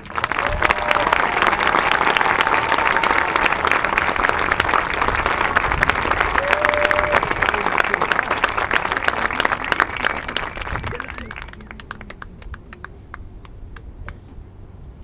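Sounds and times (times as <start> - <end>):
crowd applauding: 0.0 - 13.5.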